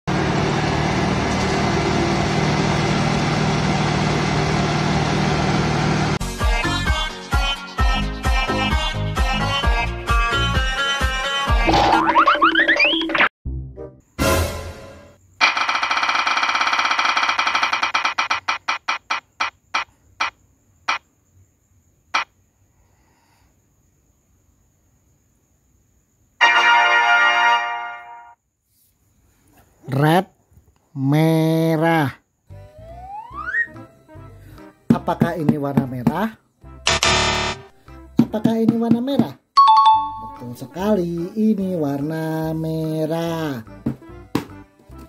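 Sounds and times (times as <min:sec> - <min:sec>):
diesel truck engine running: 0:00.1 - 0:06.2
prize wheel ticking: 0:15.4 - 0:19.3.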